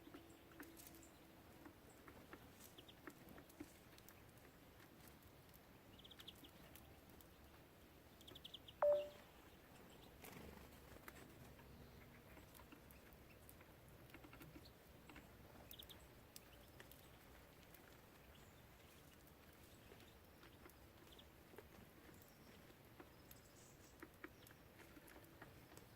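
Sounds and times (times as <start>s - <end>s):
birds pecking and tapping: 0.0s - 9.1s, 10.0s - 25.9s
sharp sound with short tone: 8.8s - 9.1s
high trilled bird chirps: 8.8s - 9.2s.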